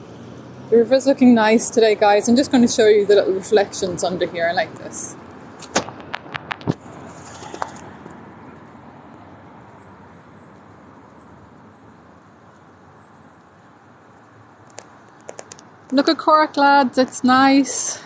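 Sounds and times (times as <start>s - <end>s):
city background noise: 0.0s - 18.0s
sharp clicks: 14.2s - 16.0s.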